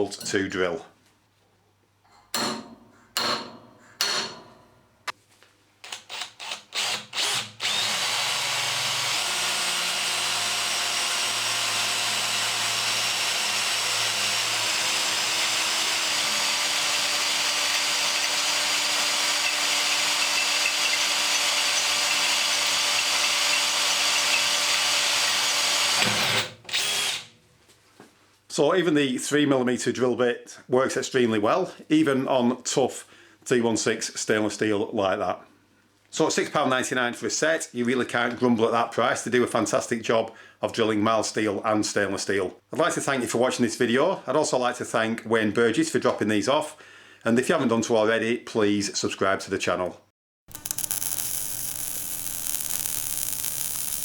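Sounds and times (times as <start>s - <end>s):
power drill drilling steel: 5.9s - 27.3s, 50.5s - 54.0s.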